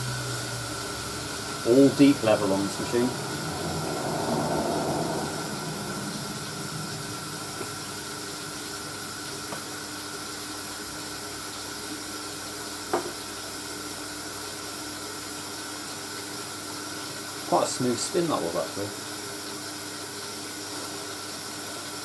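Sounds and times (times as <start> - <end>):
water filling washing machine: 0.0 - 22.0.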